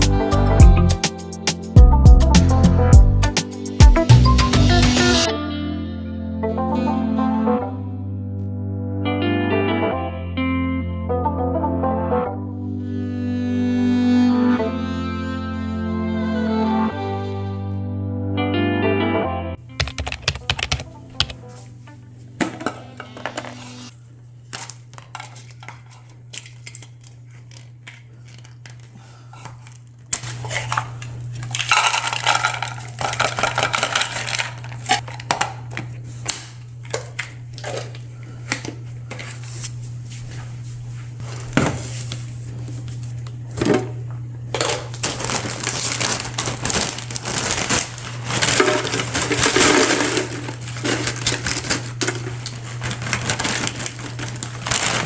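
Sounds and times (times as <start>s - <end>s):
items clicking and knocking: 19.7s - 21.5s, 24.5s - 39.3s, 43.5s - 55.0s
packaging crinkling: 19.7s - 21.5s, 24.4s - 38.4s, 44.5s - 55.0s.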